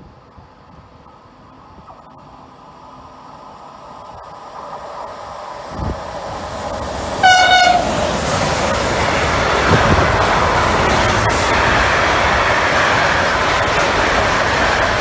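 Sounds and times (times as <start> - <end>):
train passing at speed: 0.0 - 15.0
train horn blast: 7.2 - 8.0.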